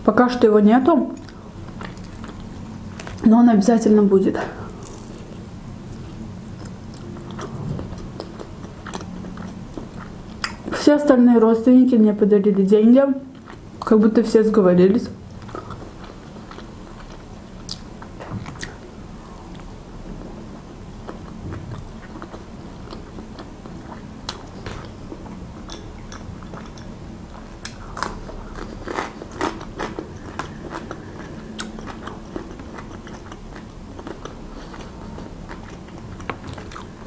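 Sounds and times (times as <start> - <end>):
chewing with wet clicks: 1.2 - 3.2, 4.7 - 10.7, 13.3 - 14.0, 15.3 - 18.9, 21.0 - 37.0.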